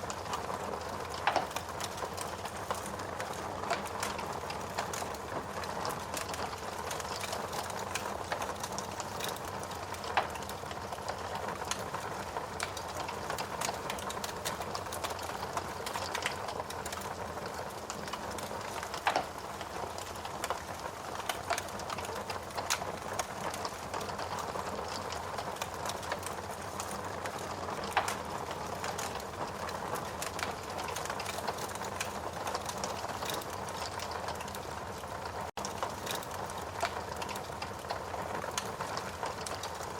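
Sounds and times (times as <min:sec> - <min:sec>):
wood fire crackling: 0:00.0 - 0:39.9
fire pops: 0:00.3 - 0:34.6.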